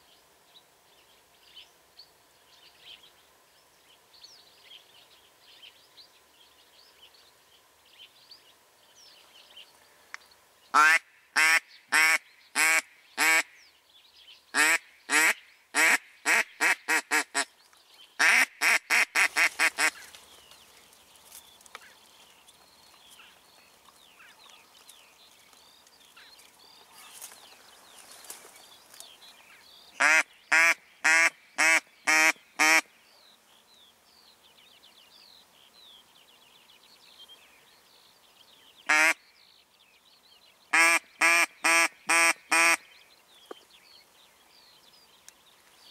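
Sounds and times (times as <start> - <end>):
small birds chirping: 0.0 - 45.9
duck quacking loudly: 10.8 - 13.5, 14.6 - 17.5, 18.2 - 20.0, 30.0 - 32.8, 38.9 - 39.2, 40.7 - 42.8.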